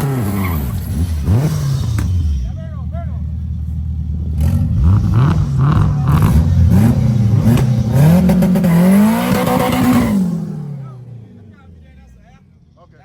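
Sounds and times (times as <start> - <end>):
car engine revving through gears: 0.0 - 2.6, 4.1 - 11.6.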